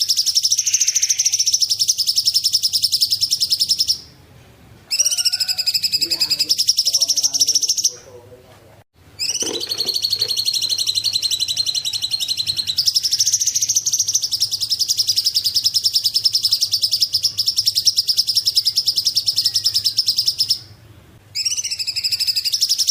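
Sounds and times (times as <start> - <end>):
bird singing fast high trill: 0.0 - 4.1, 9.2 - 22.9.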